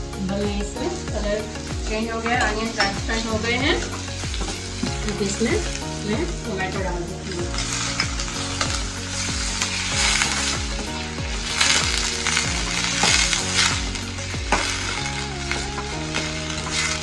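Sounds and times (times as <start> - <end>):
background music with low beat: 0.0 - 17.0
vegetables sizzling in a pan: 0.0 - 17.0
spoon stirring: 1.9 - 6.1.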